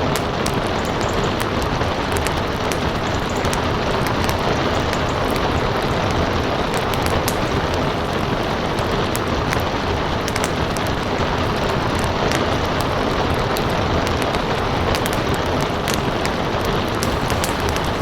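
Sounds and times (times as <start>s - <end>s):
heavy rain: 0.0s - 18.0s
wood fire crackling: 0.0s - 18.0s.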